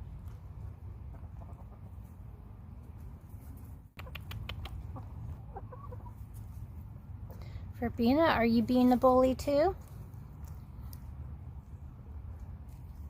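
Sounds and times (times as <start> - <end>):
hens clucking softly: 1.0 - 2.2, 4.0 - 6.6
sharp clicks: 4.0 - 4.9.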